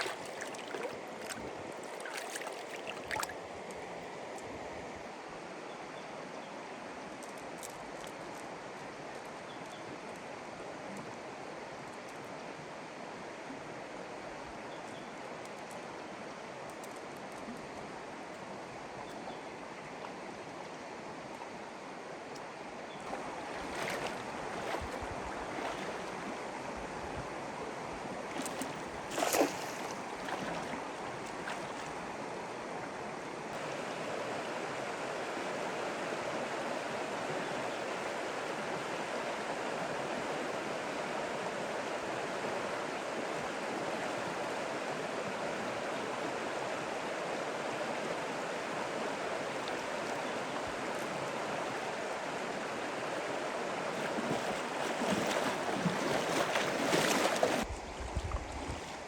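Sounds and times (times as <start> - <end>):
loud water splash: 0.0 - 3.3, 28.4 - 30.7, 54.1 - 57.7
flowing water: 0.0 - 5.6, 6.6 - 59.0.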